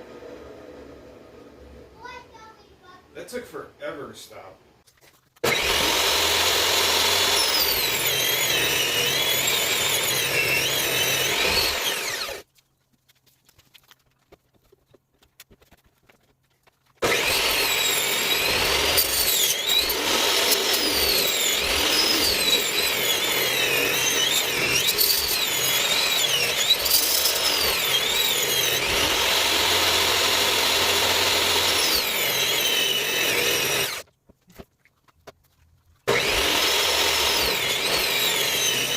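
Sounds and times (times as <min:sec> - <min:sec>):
table saw ripping wood: 0:05.4 - 0:12.5, 0:17.0 - 0:34.1, 0:36.0 - 0:38.9.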